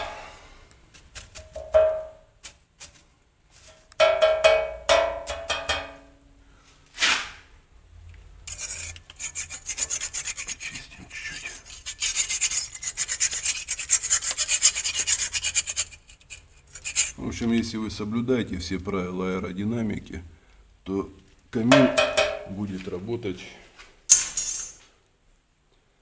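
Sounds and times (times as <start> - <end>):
dry rasping scrape: 8.4 - 17.2.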